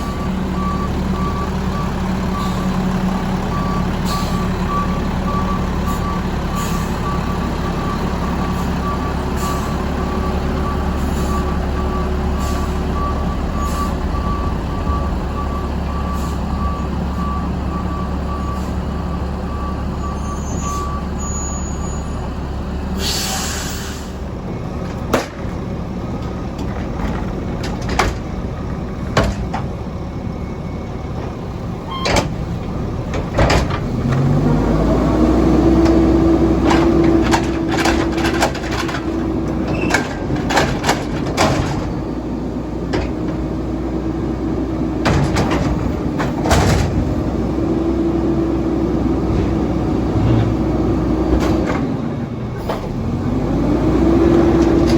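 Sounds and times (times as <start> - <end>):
truck engine revving: 0.0 - 21.2, 30.9 - 54.9
truck engine running: 0.0 - 21.2, 22.1 - 54.9
truck reversing beeper: 0.0 - 26.5, 27.9 - 54.9
air brakes hissing: 4.0 - 4.5, 5.9 - 7.0, 8.5 - 9.8, 11.0 - 11.6, 12.2 - 12.9, 13.5 - 14.1, 16.0 - 17.5, 18.5 - 18.8, 22.9 - 24.3.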